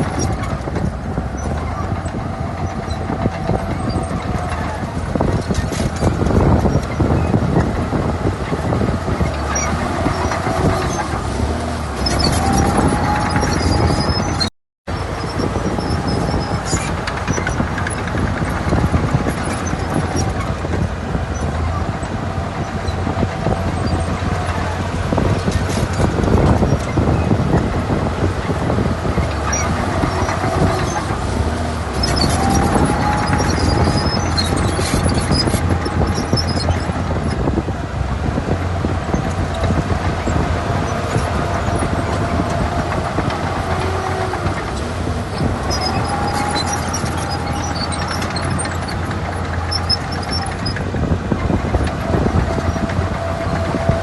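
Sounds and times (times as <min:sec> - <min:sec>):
bulldozer diesel engine: 0:00.0 - 0:54.0
high squeal: 0:08.4 - 0:20.5, 0:29.1 - 0:37.3, 0:39.1 - 0:50.8.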